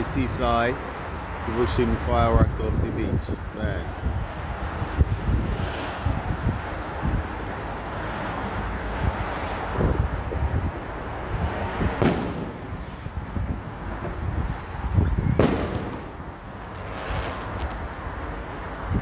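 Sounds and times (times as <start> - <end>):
fireworks booming: 11.8 - 18.6.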